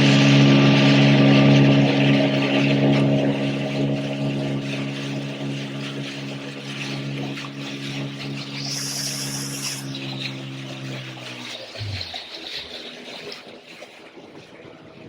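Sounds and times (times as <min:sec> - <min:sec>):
speedboat engine running: 0:00.0 - 0:15.0
water rushing along hull: 0:00.0 - 0:15.0
brief hiss: 0:08.6 - 0:10.0.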